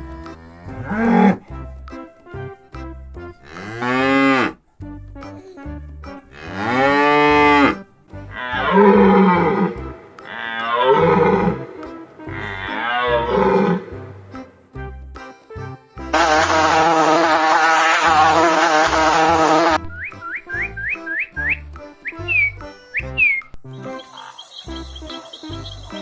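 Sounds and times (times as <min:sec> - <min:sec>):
background music with steady beat: 0:00.0 - 0:26.0
cattle mooing: 0:00.1 - 0:01.5, 0:03.4 - 0:04.6, 0:06.3 - 0:14.6, 0:16.2 - 0:19.8.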